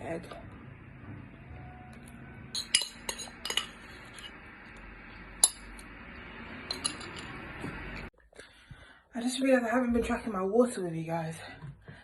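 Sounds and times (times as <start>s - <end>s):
cutlery clinking on a plate: 2.6s - 4.3s.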